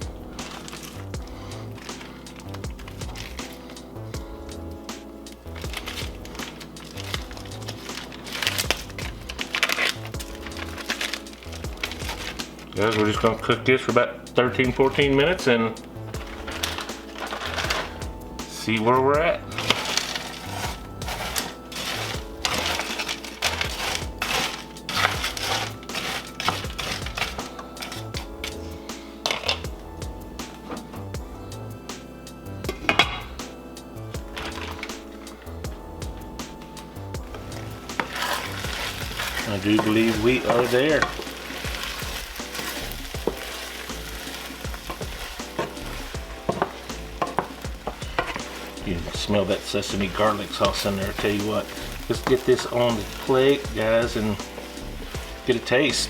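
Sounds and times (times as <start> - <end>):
stir fry sizzling in a skillet: 4.6 - 13.5, 14.8 - 29.7, 34.2 - 56.0
utensil knocking against pan: 46.4 - 48.6.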